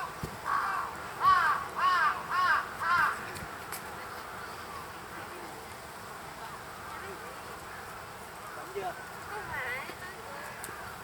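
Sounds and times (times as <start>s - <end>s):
crow cawing: 0.4s - 3.2s.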